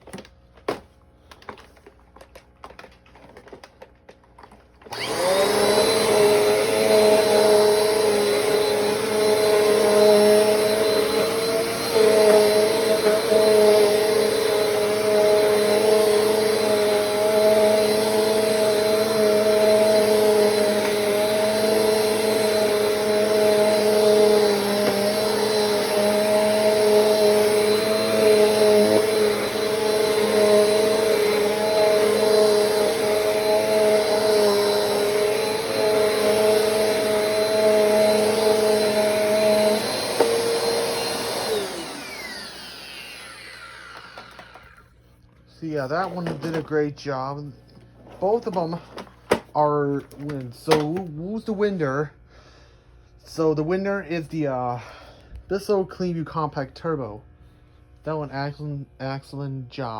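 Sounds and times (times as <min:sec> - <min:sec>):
vacuum cleaner running: 0:00.1 - 0:03.6, 0:04.4 - 0:51.8.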